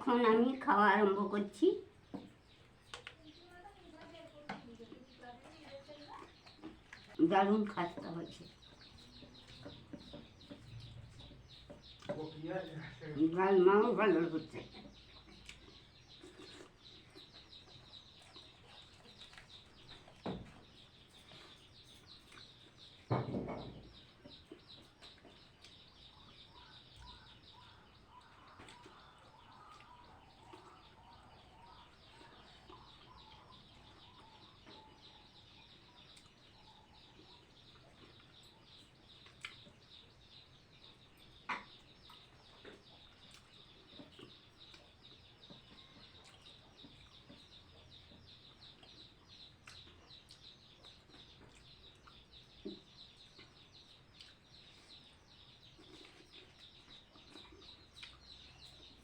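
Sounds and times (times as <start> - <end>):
birds: 0.0 - 59.0.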